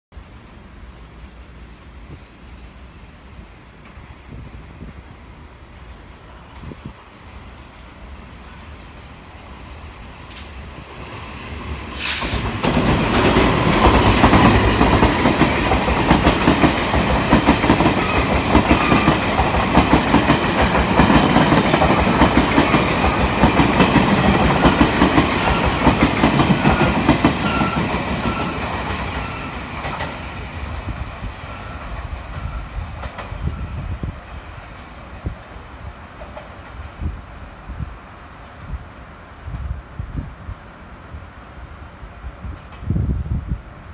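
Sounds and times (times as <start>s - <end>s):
train passing rumble: 0.2s - 43.9s
brief sharp train sound: 10.2s - 34.2s.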